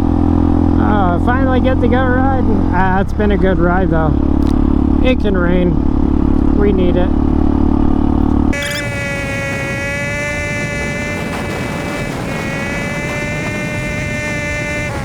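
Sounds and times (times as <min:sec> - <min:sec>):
motorcycle engine running: 0:00.0 - 0:15.0
steady whine: 0:08.5 - 0:15.0.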